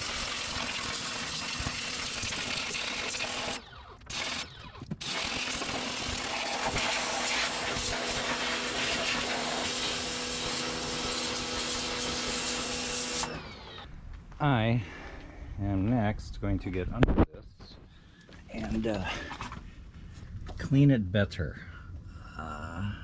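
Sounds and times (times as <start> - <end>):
pressure washer spraying water: 0.0 - 13.4
pump humming: 0.0 - 13.9.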